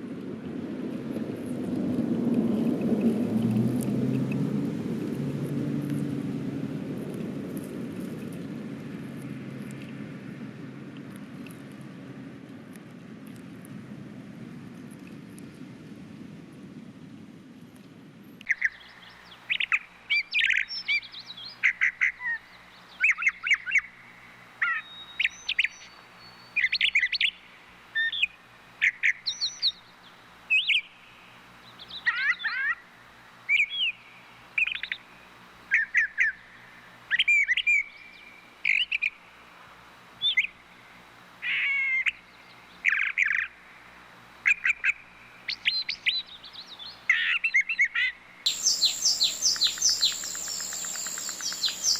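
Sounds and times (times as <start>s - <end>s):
bird chirping and squawking: 48.5s - 51.9s.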